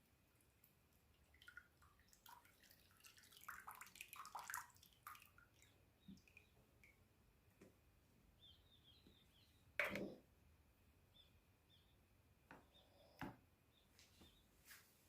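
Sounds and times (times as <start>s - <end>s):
faint ticks and drip-like plinks: 0.0s - 7.8s.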